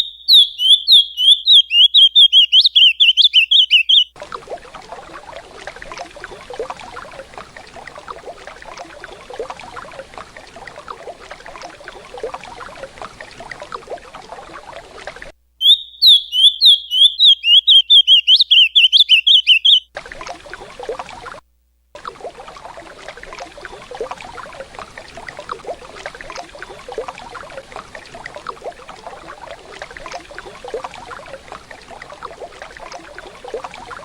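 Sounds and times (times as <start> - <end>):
bird singing warbling phrase: 0.0 - 4.1, 15.6 - 19.8
river water running: 0.0 - 34.0.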